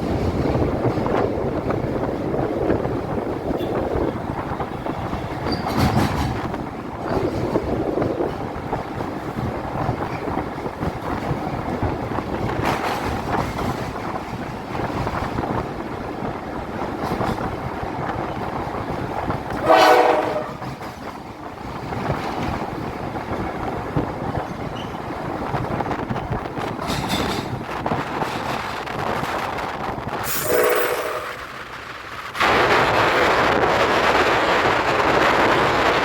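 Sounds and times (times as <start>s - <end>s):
train rumbling over bridge: 0.0s - 36.0s
train horn blast: 19.6s - 20.7s, 30.3s - 31.5s.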